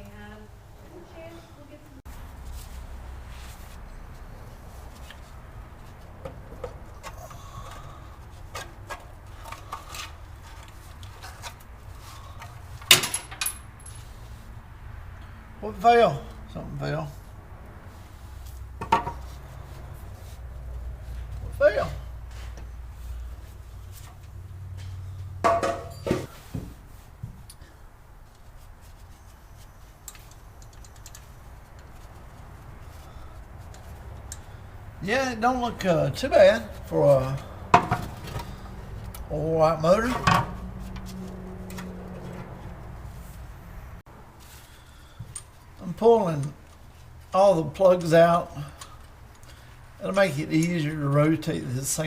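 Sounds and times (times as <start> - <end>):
metal tools clanking: 12.2 - 14.2, 24.8 - 26.4, 30.0 - 32.0.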